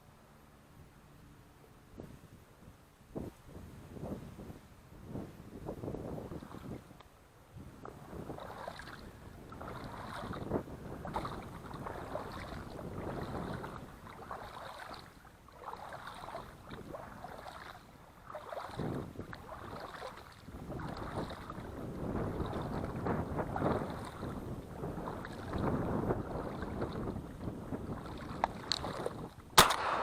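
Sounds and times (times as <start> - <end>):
wind buffeting microphone: 1.9 - 30.0
water swishing and splashing: 5.8 - 29.6.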